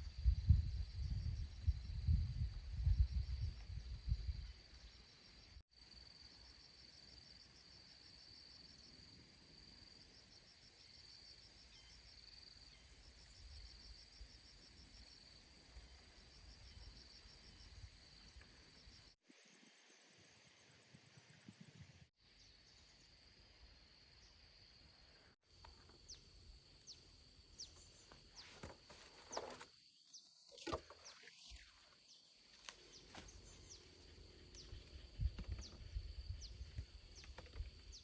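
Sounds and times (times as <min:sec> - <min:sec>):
insects chirring: 0:21.9 - 0:38.0.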